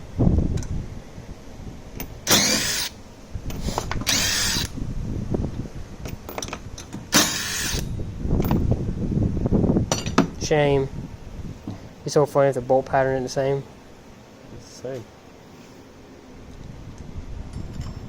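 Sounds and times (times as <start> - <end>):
handheld power tool bursts: 2.2 - 4.8, 7.0 - 7.9.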